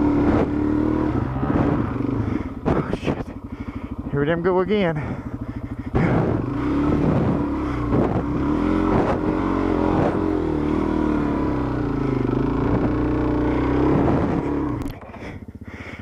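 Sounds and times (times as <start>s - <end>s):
motorcycle engine at high revs: 0.0s - 16.0s.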